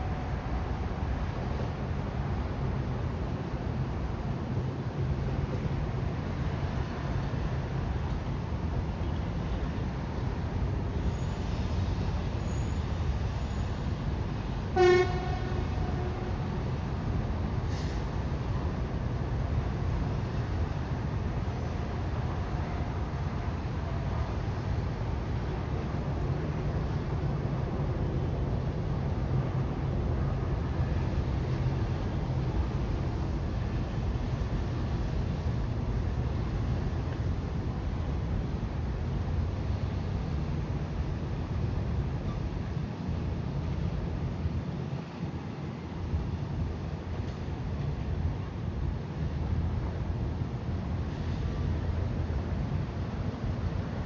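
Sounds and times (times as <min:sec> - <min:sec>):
short horn toot: 0:14.8 - 0:16.5.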